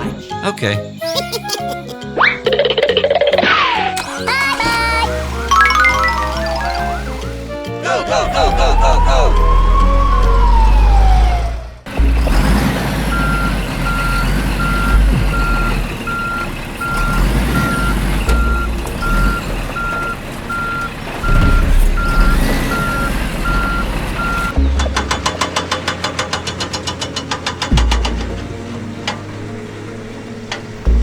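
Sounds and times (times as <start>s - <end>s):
low engine rumble: 4.5s - 31.0s
reversing alarm beeping: 7.8s - 11.6s, 13.0s - 24.6s
siren wailing: 7.8s - 11.9s.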